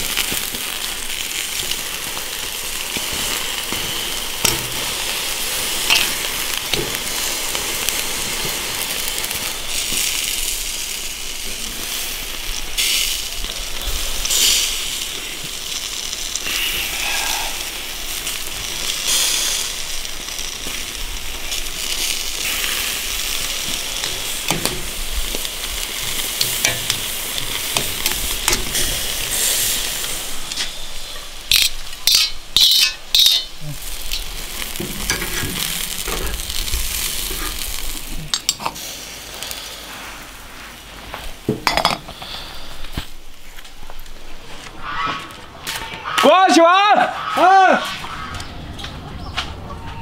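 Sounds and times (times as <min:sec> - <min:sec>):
greens sizzling in a grill pan: 0:00.0 - 0:45.0
metal tongs tossing food: 0:23.6 - 0:29.8, 0:31.5 - 0:38.7.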